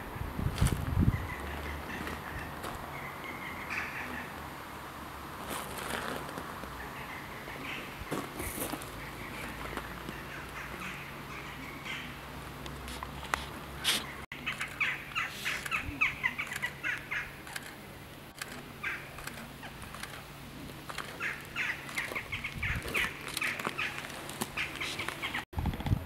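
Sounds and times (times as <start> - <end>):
birds calling sharply: 6.7 - 12.8, 13.8 - 25.5.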